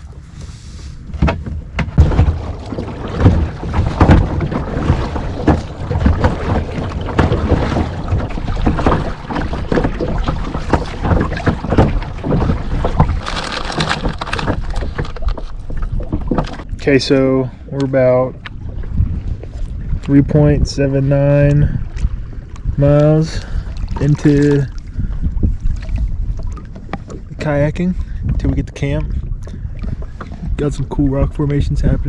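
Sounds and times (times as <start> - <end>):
paddle strokes splashing: 0.0 - 16.7, 21.7 - 30.6
wind buffeting microphone: 0.0 - 32.0.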